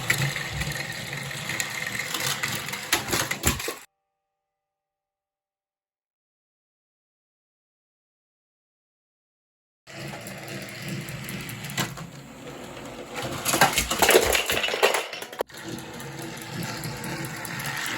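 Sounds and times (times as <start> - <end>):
toy train motor whirring: 0.0 - 3.9, 9.9 - 17.9.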